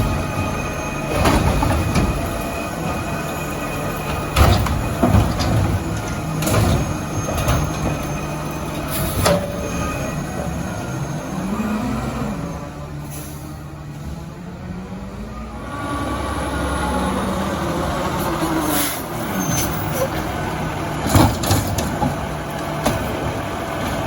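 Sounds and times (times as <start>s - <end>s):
metal clanks and bangs: 0.0s - 10.0s, 21.0s - 24.0s
garbage truck engine hum: 0.0s - 24.0s.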